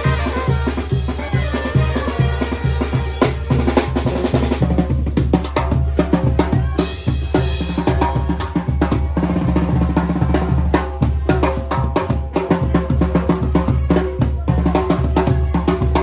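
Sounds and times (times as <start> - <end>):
held horn notes: 0.0 - 4.3
wind band playing: 0.0 - 4.8
snare and bass drum: 0.0 - 16.0.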